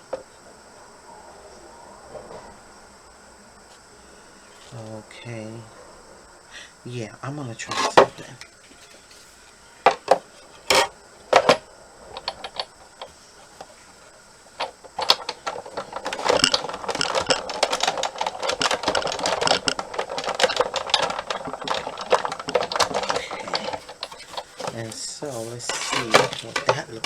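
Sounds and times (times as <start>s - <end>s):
rapid clicking and rattling: 6.9s - 27.0s.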